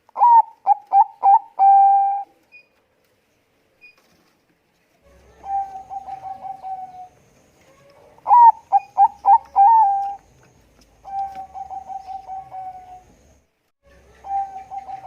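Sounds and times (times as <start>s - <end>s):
dove cooing: 0.2s - 2.3s, 5.0s - 10.4s, 11.0s - 13.2s, 14.0s - 15.0s.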